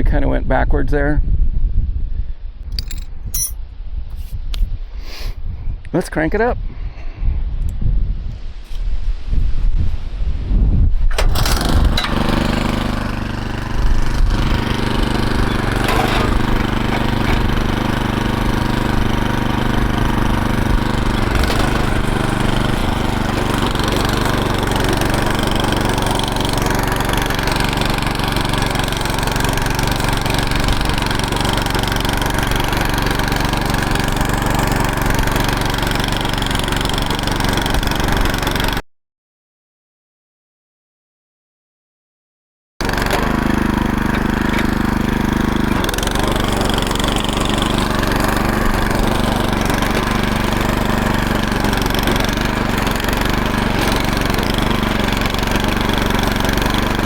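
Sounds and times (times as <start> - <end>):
small gas engine starting: 11.1 - 38.8, 42.8 - 57.0.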